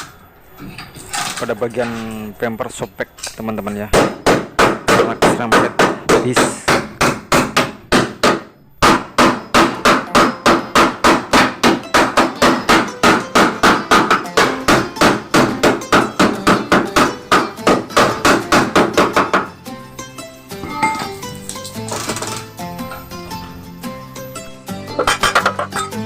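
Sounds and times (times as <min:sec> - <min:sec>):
hammer striking car bodywork: 0:03.9 - 0:19.5, 0:25.0 - 0:26.0.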